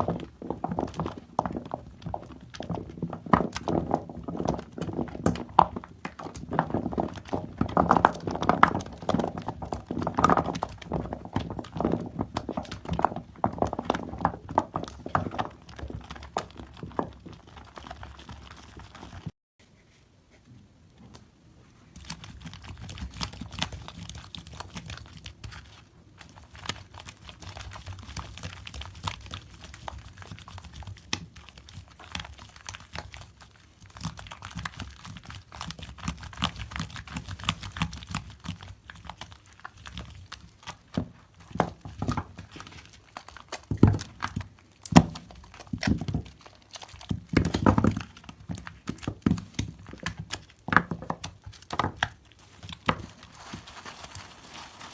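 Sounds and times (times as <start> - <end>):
soap foam crackling: 0.0 - 19.9, 21.8 - 54.9.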